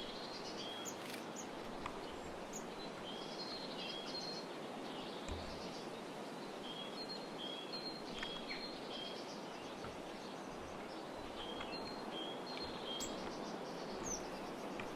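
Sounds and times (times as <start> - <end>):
great tit singing: 0.0 - 4.4
steady background hiss: 0.0 - 14.9.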